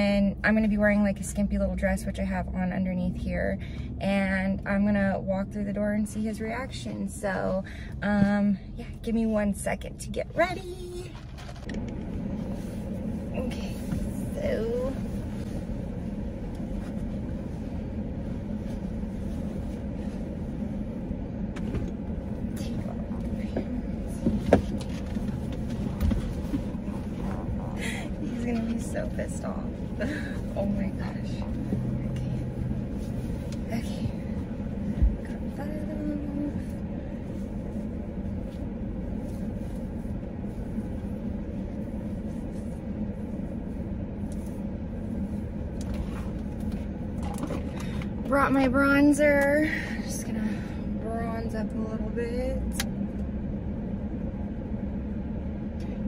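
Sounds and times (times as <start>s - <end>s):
car engine rumble from inside: 0.0s - 56.0s
faint clothing rustles: 22.4s - 47.8s.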